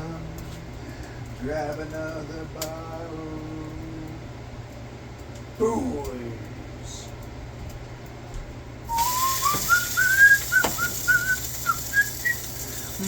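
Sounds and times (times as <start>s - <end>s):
person whistling a tune: 8.9s - 12.6s
steady hiss: 8.9s - 13.0s.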